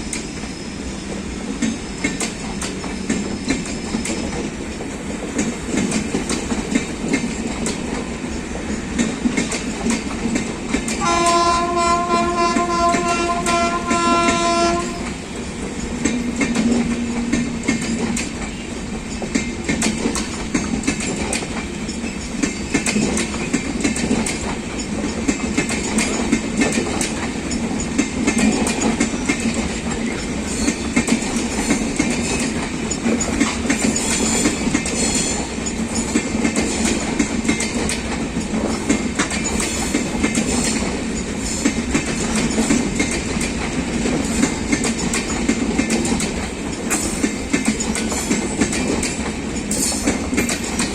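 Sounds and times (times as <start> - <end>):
train wheels clicking over rail joints: 0.0 - 50.9
train horn: 11.0 - 15.4.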